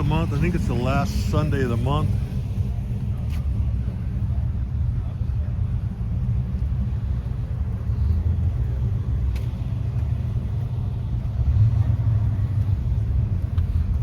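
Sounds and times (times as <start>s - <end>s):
car engine running: 0.0s - 14.0s
road noise: 0.0s - 14.0s.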